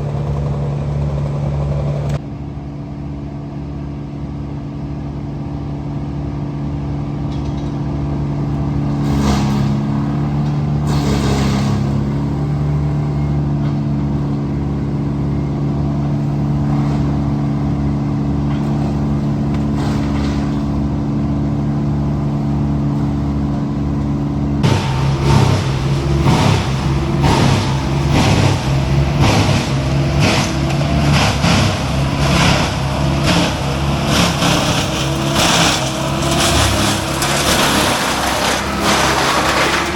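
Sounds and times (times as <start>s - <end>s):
diesel engine running: 0.0s - 39.9s
rapid crackle: 24.6s - 39.9s.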